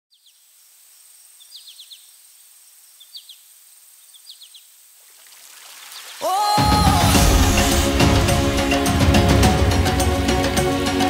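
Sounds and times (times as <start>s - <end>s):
bird chirping: 0.1s - 4.8s.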